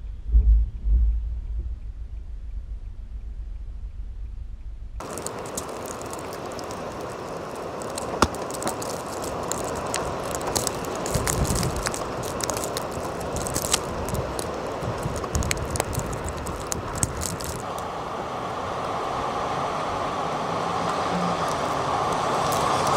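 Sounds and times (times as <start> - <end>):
storm wind blowing: 0.0 - 22.9
small ticks and crackles: 5.0 - 17.9, 20.6 - 22.9
wind gusts buffeting microphone: 5.0 - 22.9.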